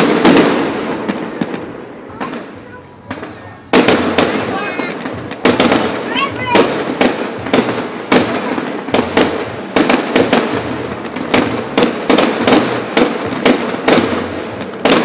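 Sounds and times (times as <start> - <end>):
firework shells bursting: 0.0 - 15.0.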